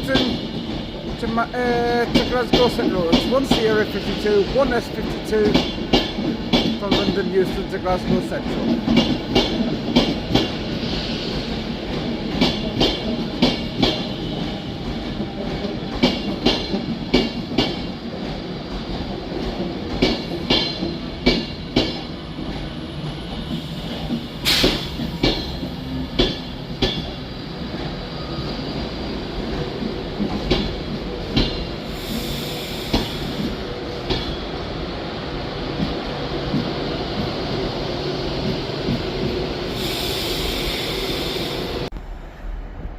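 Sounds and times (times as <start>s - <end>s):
electric train rumble: 0.0s - 42.9s
train wheels clicking over rail joints: 0.1s - 28.0s, 29.4s - 34.5s
short hiss: 24.4s - 24.9s.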